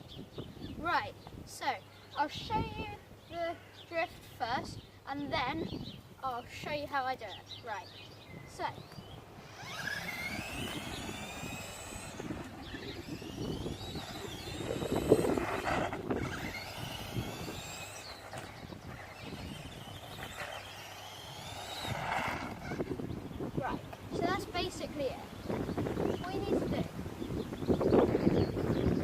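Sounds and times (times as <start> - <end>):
remote-control car motor whining: 8.6 - 29.0
tyres rasping on ground: 9.2 - 24.8.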